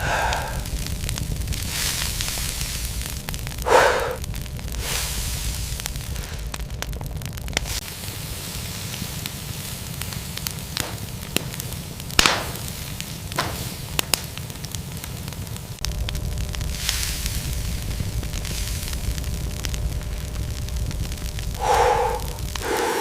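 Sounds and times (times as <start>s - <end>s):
low rumble: 0.0s - 8.3s, 15.8s - 23.0s
crackles and pops: 0.0s - 23.0s
steady hiss: 0.0s - 23.0s
loud whooshes: 21.6s - 23.0s.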